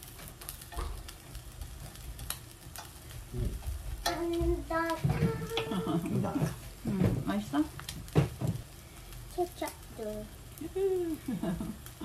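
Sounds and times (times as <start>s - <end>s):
food sizzling in a frying pan: 0.0s - 12.0s
spatula and chopsticks clicking: 2.2s - 3.0s, 4.0s - 5.8s.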